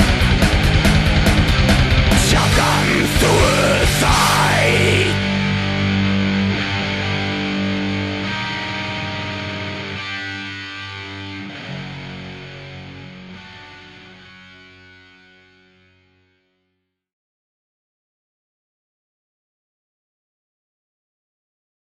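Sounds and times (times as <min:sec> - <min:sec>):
black metal band playing: 0:00.0 - 0:16.1
distorted guitar chord ringing: 0:00.0 - 0:16.6.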